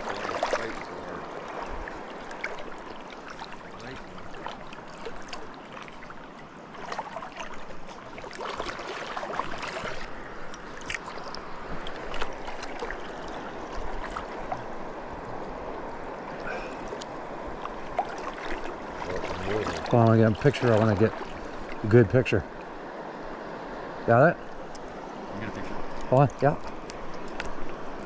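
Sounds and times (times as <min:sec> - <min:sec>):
river water rushing: 0:00.0 - 0:28.0
small clicks and splashes: 0:06.8 - 0:14.7, 0:16.9 - 0:21.8, 0:25.6 - 0:28.0.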